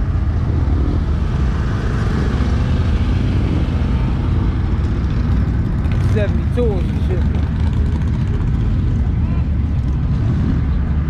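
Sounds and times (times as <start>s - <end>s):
car engine running: 0.0s - 10.8s.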